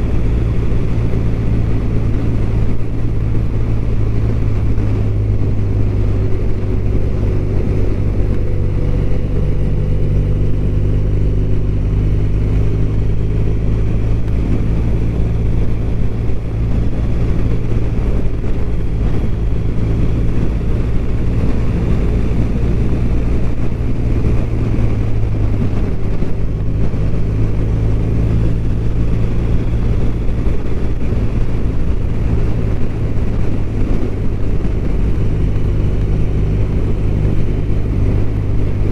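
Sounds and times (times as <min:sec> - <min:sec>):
motorcycle engine droning: 0:00.0 - 0:38.9.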